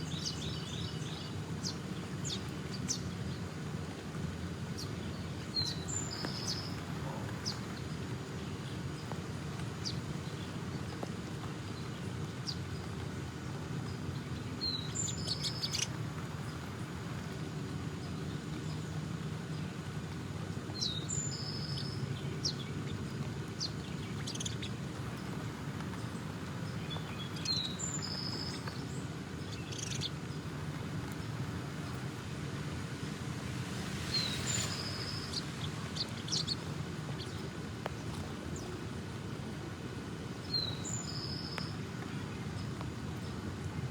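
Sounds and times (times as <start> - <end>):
songbird chirping: 4.7 - 9.2, 20.7 - 38.9, 40.4 - 43.4.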